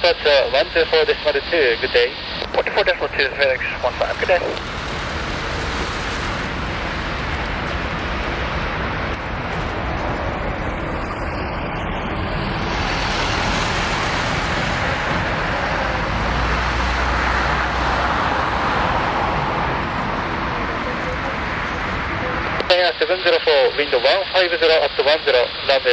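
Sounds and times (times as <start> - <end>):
jet engines running: 0.0 - 25.9.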